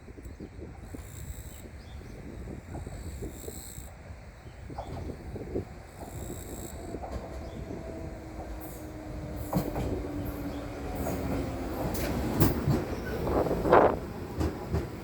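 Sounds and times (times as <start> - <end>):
electric train rumbling: 0.0 - 15.0
wheels clicking over rail joints: 4.7 - 15.0.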